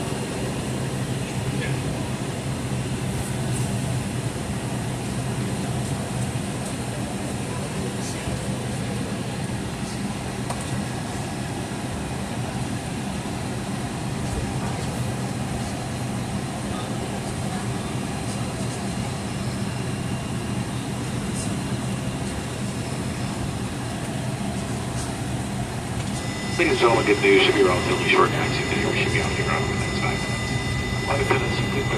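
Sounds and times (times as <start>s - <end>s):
low constant drone: 19.9s - 31.9s.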